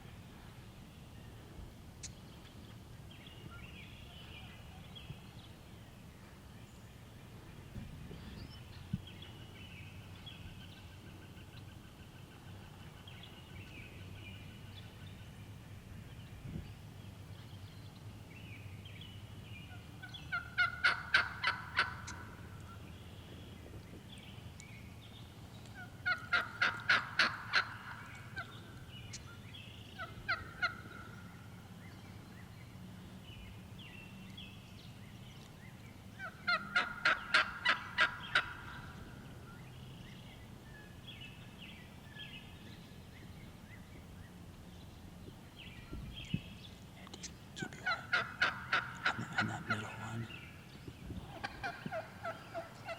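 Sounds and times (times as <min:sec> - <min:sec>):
faint songbird chirping: 0:00.0 - 0:52.9
turkey yelping: 0:20.3 - 0:22.2, 0:26.0 - 0:28.5, 0:36.2 - 0:38.8, 0:47.8 - 0:49.8, 0:51.3 - 0:52.9.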